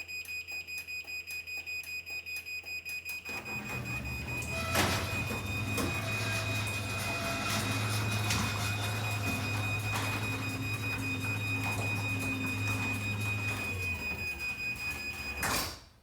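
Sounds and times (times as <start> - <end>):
garage door opener beeping: 0.0 - 16.0
garage door motor running: 3.3 - 16.0
door clunk: 4.4 - 13.8.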